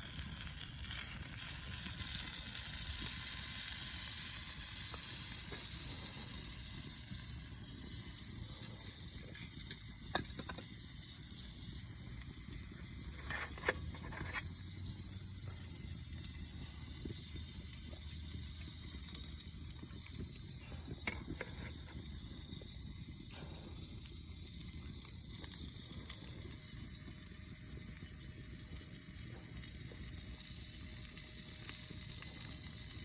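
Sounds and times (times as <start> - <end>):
sausages sizzling on a griddle: 0.0 - 33.0.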